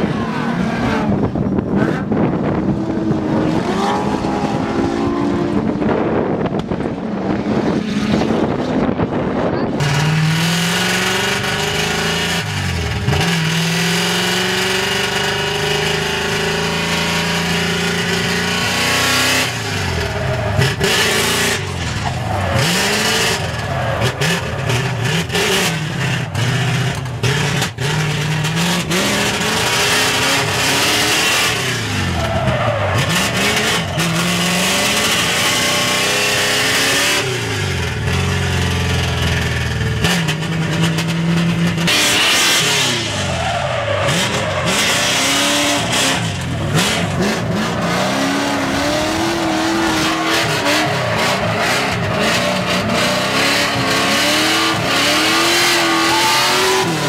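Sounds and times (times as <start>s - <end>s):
car engine revving: 0.0s - 57.0s
tyre squeal: 27.4s - 35.9s, 42.8s - 53.9s, 54.7s - 57.0s.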